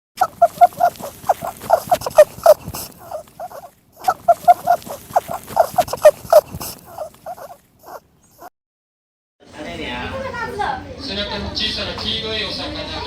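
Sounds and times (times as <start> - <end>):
animal calling in short notes: 0.2 - 8.0.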